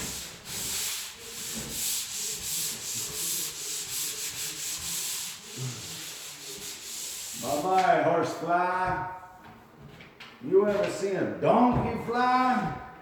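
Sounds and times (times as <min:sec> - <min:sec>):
sandpaper rasping on drywall: 0:00.0 - 0:07.8.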